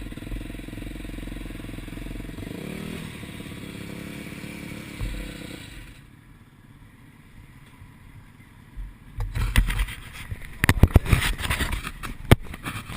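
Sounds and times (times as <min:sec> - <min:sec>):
motocross engine running: 0:00.0 - 0:06.1
sharp knocks and crackles: 0:04.9 - 0:05.5, 0:08.8 - 0:12.9.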